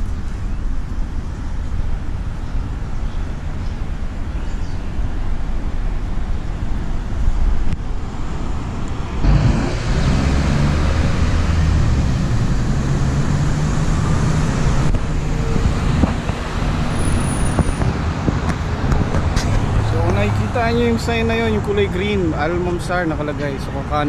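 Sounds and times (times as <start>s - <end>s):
passing traffic: 0.0s - 24.0s
vehicle engine running: 8.0s - 21.6s.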